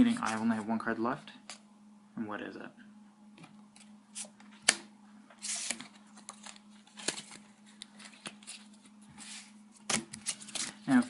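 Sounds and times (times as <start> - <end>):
cards sliding on table: 5.4 - 7.4.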